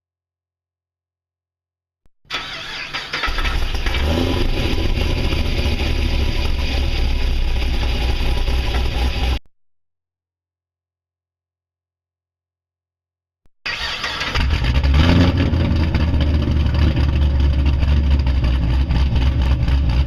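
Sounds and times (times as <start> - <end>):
car engine starting up: 2.3 - 9.4, 13.7 - 20.0
loud low exhaust rumble idling: 3.6 - 9.4, 14.6 - 20.0.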